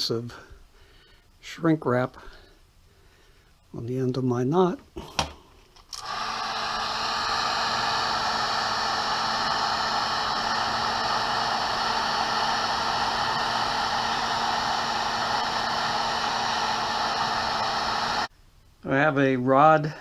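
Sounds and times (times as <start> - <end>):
heat gun blowing air: 5.9 - 18.3.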